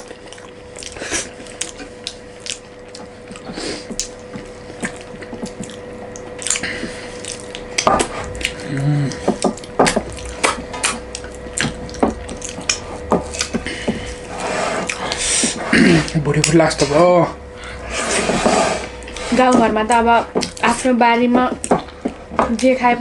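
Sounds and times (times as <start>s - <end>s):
wet mouth sounds: 0.0s - 14.2s.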